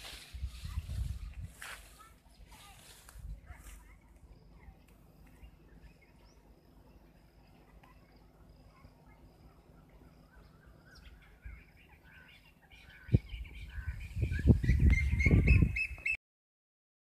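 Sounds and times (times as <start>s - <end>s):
birds chirping: 4.3s - 16.2s.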